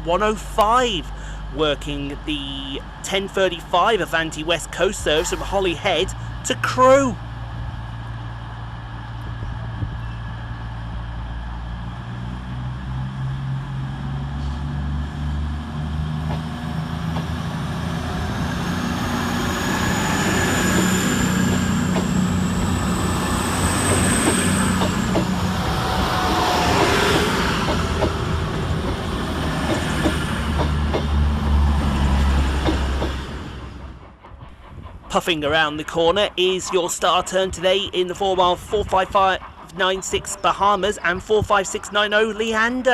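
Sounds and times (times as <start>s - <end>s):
train diesel engines: 0.0s - 42.9s
wheels clicking over rail joints: 20.5s - 33.4s.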